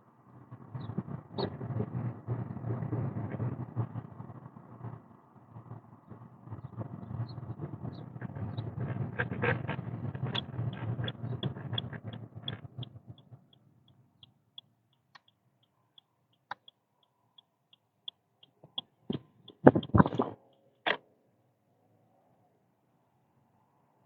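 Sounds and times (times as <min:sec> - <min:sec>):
low road and engine rumble: 0:00.0 - 0:15.6, 0:18.4 - 0:21.0
light regular ticking: 0:09.4 - 0:20.2.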